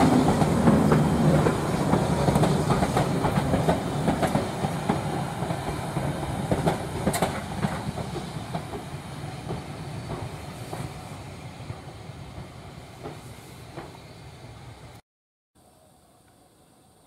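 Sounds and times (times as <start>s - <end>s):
train wheels clicking over rail joints: 0.0s - 11.0s, 12.3s - 14.1s.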